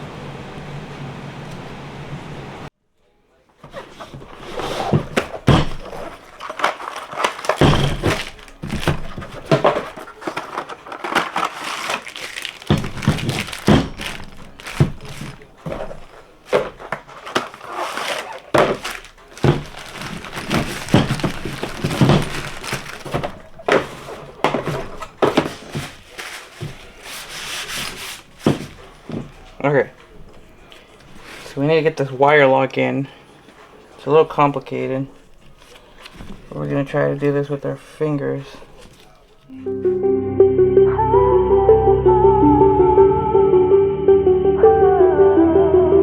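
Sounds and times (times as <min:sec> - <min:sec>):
metal engine parts clattering: 0:04.9 - 0:25.9.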